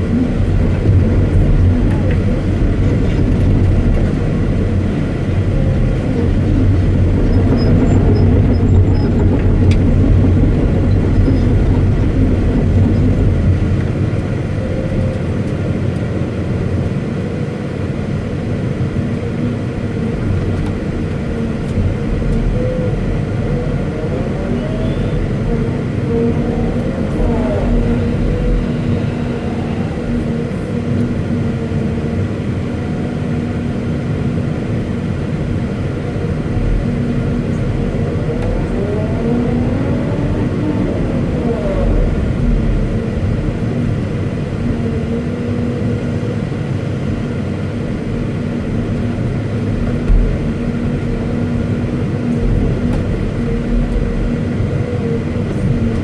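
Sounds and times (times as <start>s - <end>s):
excavator diesel engine humming: 0.0s - 56.0s
whine rising and falling: 21.7s - 30.7s, 36.7s - 43.6s.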